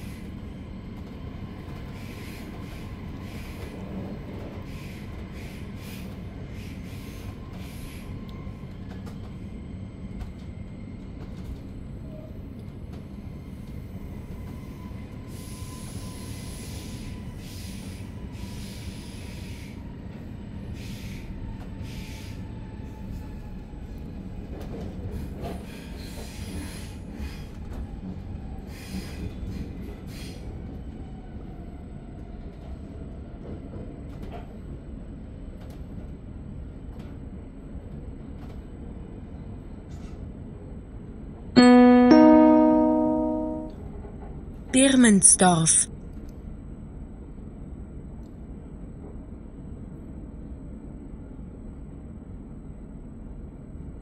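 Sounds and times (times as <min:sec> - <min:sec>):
train rumble inside coach: 0:00.0 - 0:44.7, 0:45.9 - 0:54.0
two-note announcement chime: 0:41.6 - 0:43.8.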